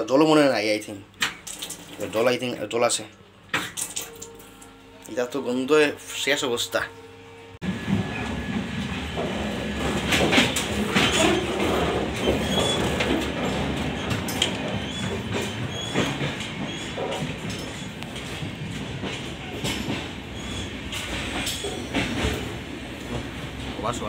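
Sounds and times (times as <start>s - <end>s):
train wheels rumbling and rattling: 7.6s - 24.0s.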